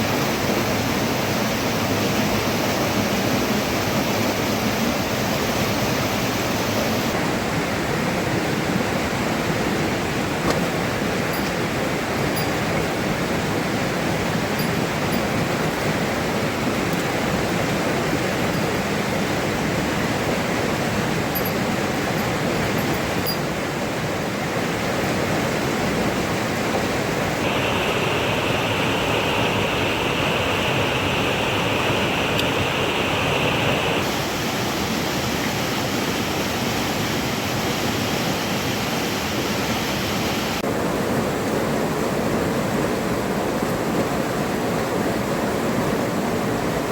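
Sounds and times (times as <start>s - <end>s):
water rushing: 0.0s - 46.9s
bright hiss: 27.4s - 35.3s.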